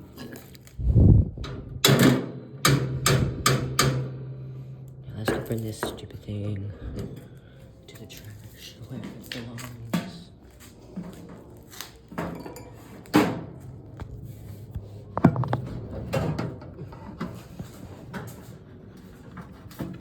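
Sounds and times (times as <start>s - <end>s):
knocks of things being handled: 15.2s - 15.7s.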